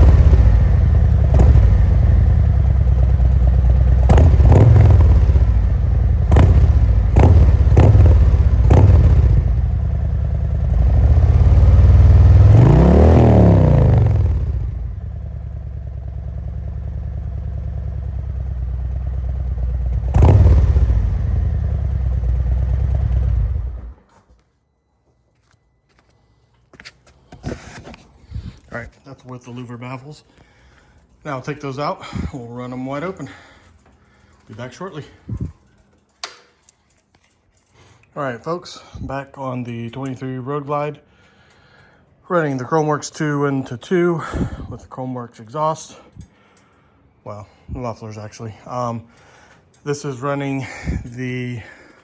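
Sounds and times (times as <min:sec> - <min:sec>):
motorcycle engine idling: 0:00.0 - 0:24.1
motorcycle engine revving: 0:00.0 - 0:24.1.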